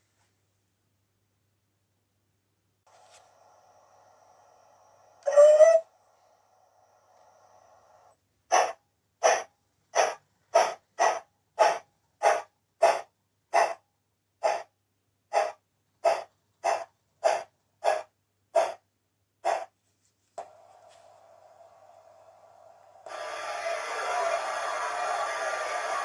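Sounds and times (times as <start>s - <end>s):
steam locomotive chuffs from speaker: 5.9s - 13.8s, 15.4s - 18.8s, 20.4s - 26.0s.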